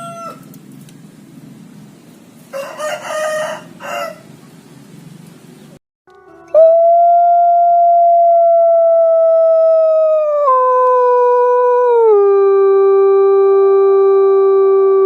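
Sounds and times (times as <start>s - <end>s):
dog howling: 6.4s - 12.6s.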